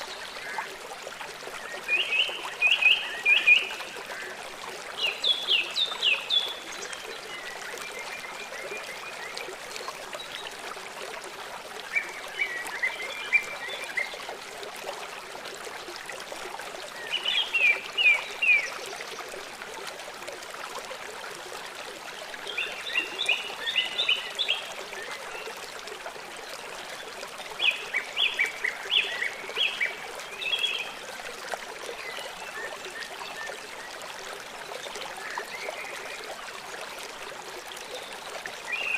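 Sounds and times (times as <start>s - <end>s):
stream trickling: 0.0s - 38.9s.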